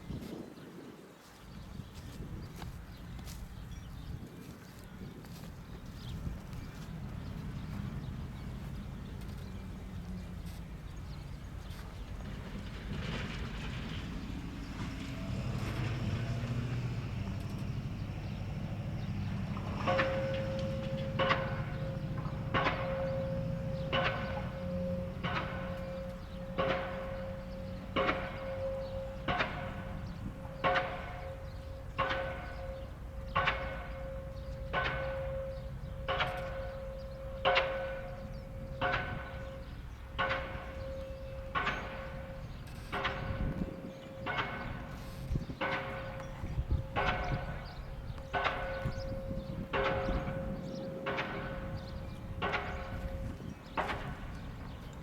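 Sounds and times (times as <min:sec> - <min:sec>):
low engine rumble: 0:01.6 - 0:55.0
pile hammer clanging blows: 0:19.0 - 0:55.0.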